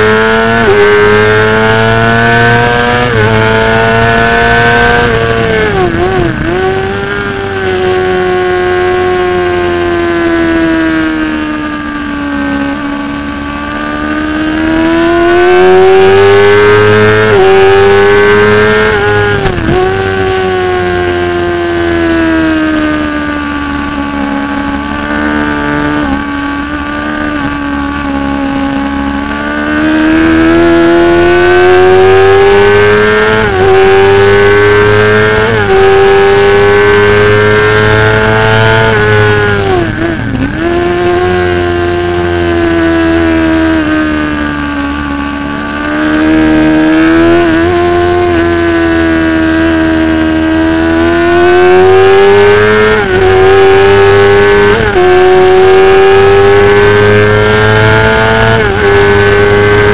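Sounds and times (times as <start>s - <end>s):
racing motorcycle engine: 0.0s - 59.9s.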